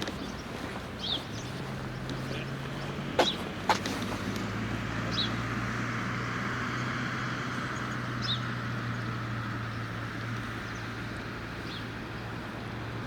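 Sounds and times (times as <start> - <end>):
distant traffic wash: 0.0 - 13.0
bird chirps: 0.2 - 3.4.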